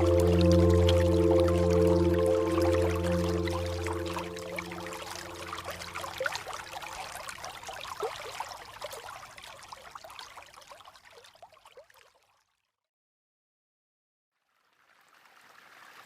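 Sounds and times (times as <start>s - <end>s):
held music tone: 0.0s - 6.3s
water trickling and splashing: 0.0s - 12.8s, 14.4s - 16.0s.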